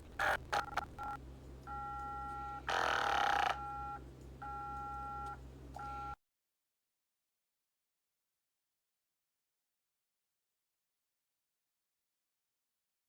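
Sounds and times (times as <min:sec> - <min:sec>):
electronic beeping tones: 0:00.0 - 0:06.2
low hum: 0:00.0 - 0:06.2.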